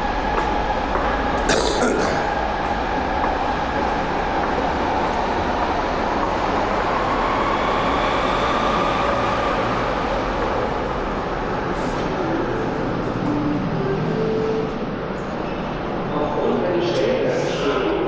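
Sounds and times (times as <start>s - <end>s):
train rumbling along track: 0.0s - 18.0s.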